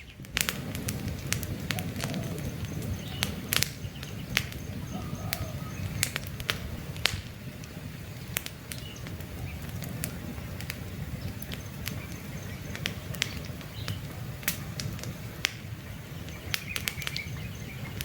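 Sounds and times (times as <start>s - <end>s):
campfire wood crackling: 0.0s - 18.0s
low rumble of fire: 0.0s - 18.0s
faint bird chirps: 1.7s - 6.2s.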